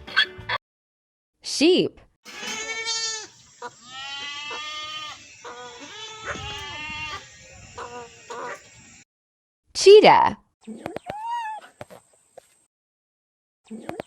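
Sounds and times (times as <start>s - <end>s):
sheep bleating: 2.3s - 9.0s.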